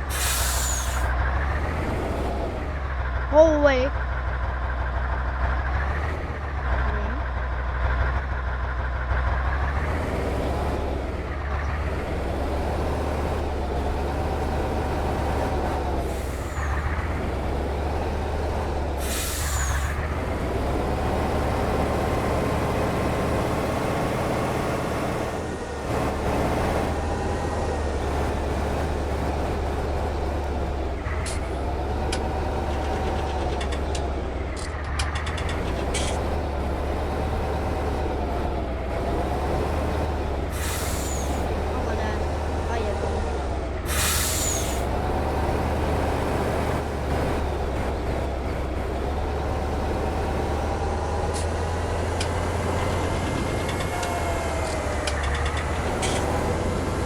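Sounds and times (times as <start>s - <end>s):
diesel engine revving: 0.0s - 57.0s
air hiss: 0.1s - 1.1s, 19.0s - 19.9s, 43.9s - 44.8s.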